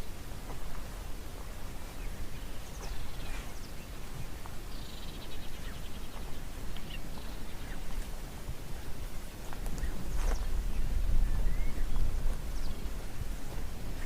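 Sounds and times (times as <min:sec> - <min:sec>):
steady low rumble: 0:00.0 - 0:14.0
bird chirps: 0:01.8 - 0:08.1.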